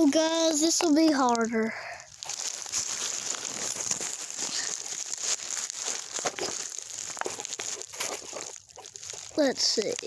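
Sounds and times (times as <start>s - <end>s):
close rustling and crackling: 0.0s - 10.0s.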